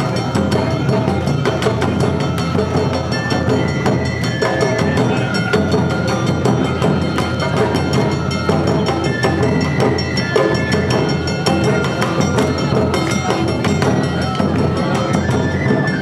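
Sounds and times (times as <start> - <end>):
high flute melody: 0.0 - 16.0
taiko drums beating: 0.0 - 16.0.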